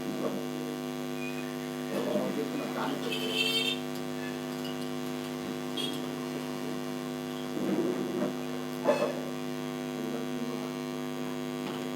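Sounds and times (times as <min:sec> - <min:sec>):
steady electrical hum: 0:00.0 - 0:11.9.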